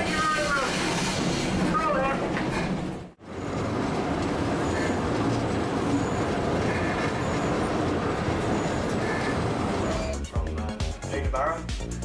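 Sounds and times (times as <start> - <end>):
steam train rumbling and rattling: 0.0 - 12.0.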